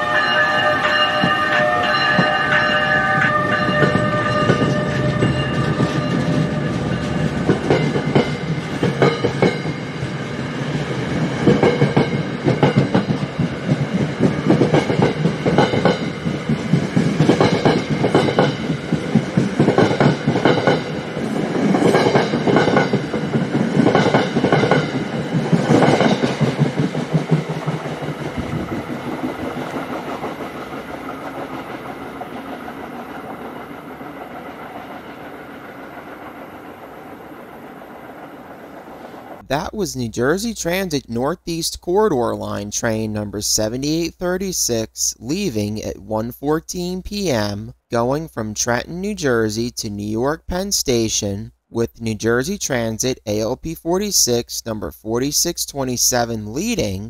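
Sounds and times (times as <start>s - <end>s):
train horn blast: 0.0s - 7.3s
train wheels clacking: 0.0s - 36.8s.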